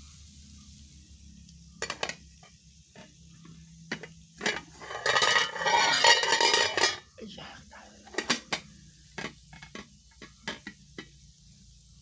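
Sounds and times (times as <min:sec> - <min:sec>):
utensils clinking on dishes: 0:03.9 - 0:07.2, 0:08.1 - 0:08.6.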